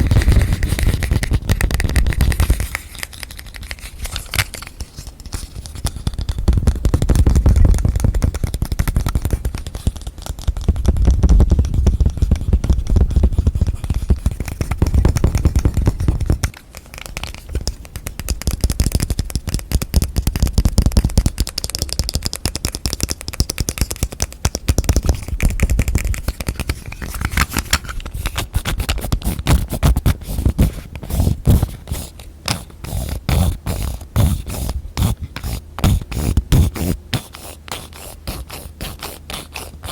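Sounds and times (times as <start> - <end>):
fast tapping on objects: 0.0 - 39.9.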